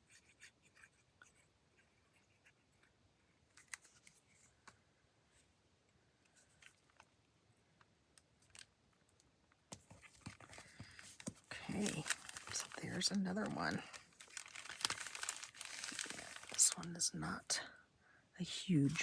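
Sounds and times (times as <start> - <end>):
paper rustling and clicks: 9.7 - 16.8.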